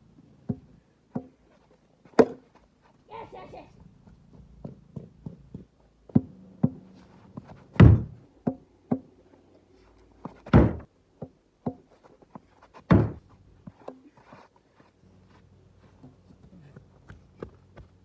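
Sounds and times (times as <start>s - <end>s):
cricket bat hitting ball: 2.2s - 2.4s, 12.9s - 13.2s.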